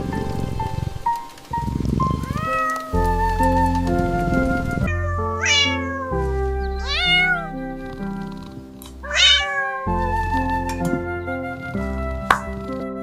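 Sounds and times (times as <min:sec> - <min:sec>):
gentle background music: 0:00.0 - 0:13.0
cat meowing: 0:02.2 - 0:03.0, 0:04.9 - 0:08.1, 0:09.0 - 0:10.1.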